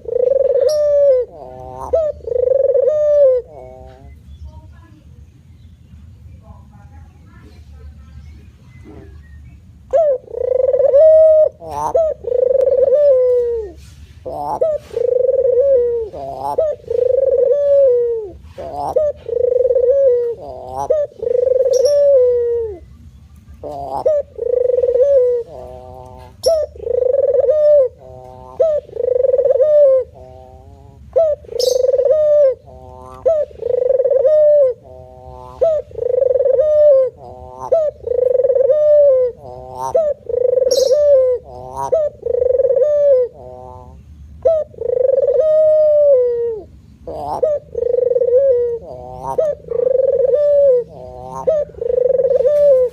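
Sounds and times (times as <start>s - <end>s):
dove cooing: 0.0s - 4.2s, 8.8s - 52.9s
faint bird chirps: 31.4s - 34.2s, 39.4s - 42.7s.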